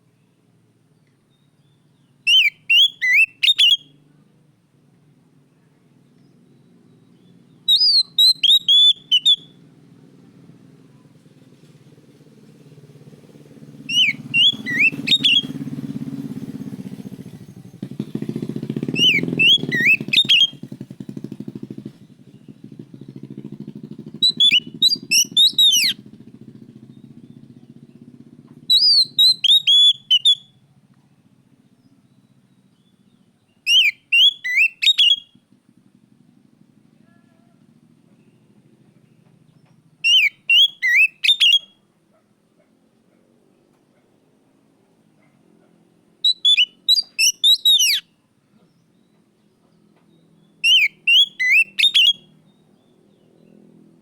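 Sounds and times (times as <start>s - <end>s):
bird singing whistled phrases: 1.3s - 4.0s, 6.6s - 9.6s, 13.9s - 15.6s, 18.9s - 20.6s, 24.2s - 26.0s, 28.7s - 30.6s, 32.7s - 35.4s, 40.0s - 41.8s, 46.2s - 48.1s, 50.4s - 52.9s.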